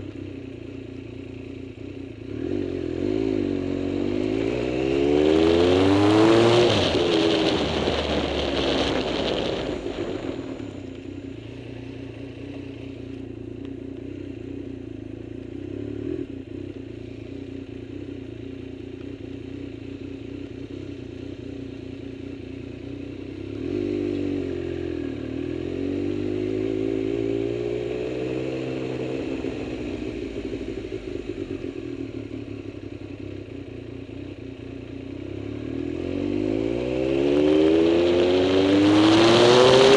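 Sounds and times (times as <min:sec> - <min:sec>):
vehicle engine revving: 0:02.2 - 0:10.9, 0:35.3 - 0:39.9.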